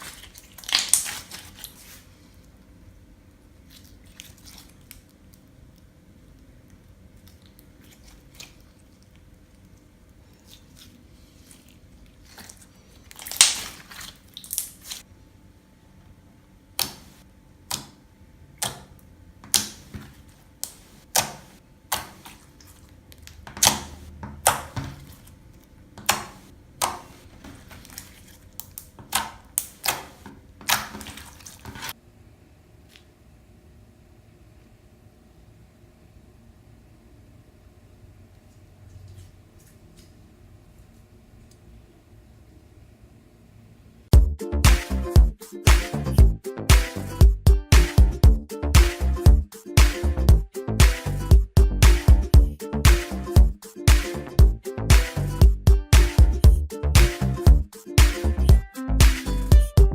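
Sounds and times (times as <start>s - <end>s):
wet slime squelches and pops: 0.0s - 1.8s, 12.2s - 15.0s, 27.8s - 31.9s.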